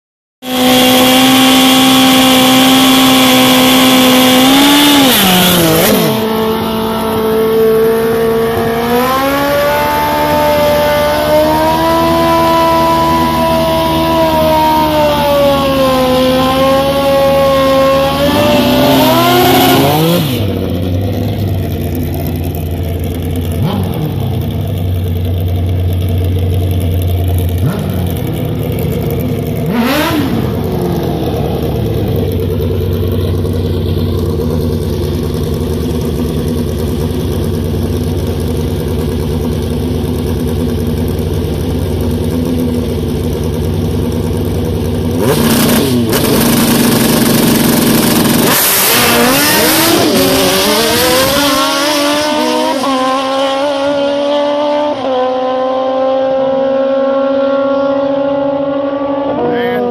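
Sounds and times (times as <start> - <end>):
motorcycle engine revving: 0.4 - 59.9.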